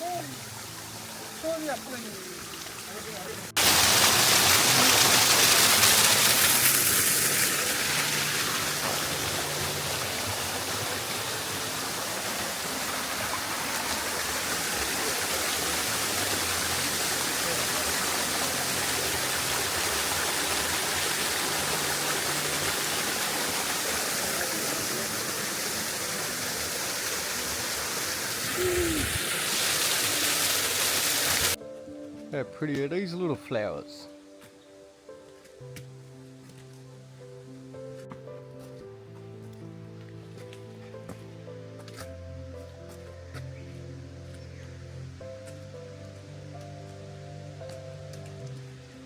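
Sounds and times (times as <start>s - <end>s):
running water: 0.0s - 31.6s.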